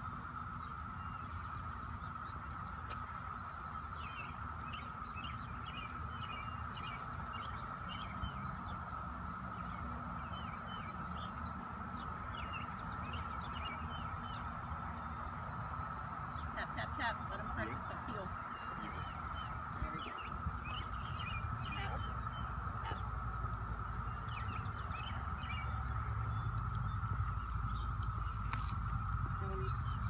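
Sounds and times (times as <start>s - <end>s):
small birds chirping: 0.3s - 30.0s.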